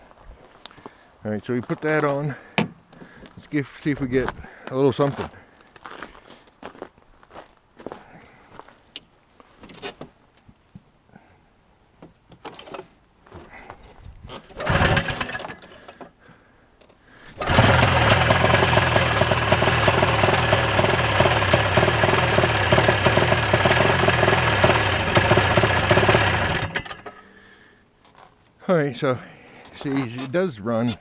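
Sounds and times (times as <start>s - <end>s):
snowmobile engine running: 14.7s - 15.2s, 17.4s - 26.8s.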